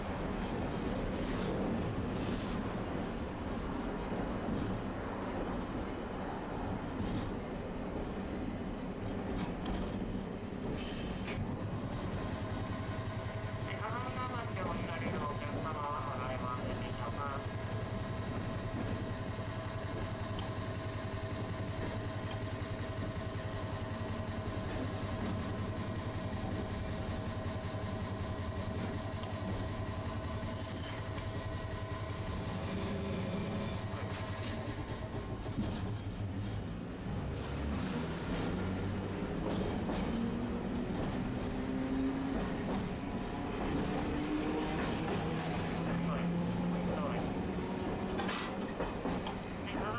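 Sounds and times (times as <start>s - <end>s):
streetcar rumbling on tracks: 0.0s - 49.9s
tram motor whine rising: 22.1s - 49.7s.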